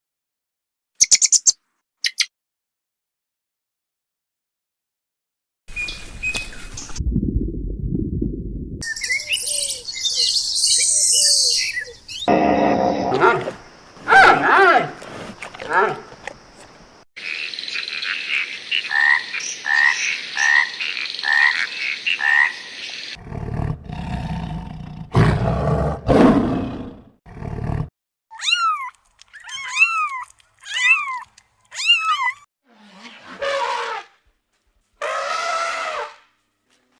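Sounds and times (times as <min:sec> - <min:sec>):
short arching chirps: 0:01.0 - 0:02.3.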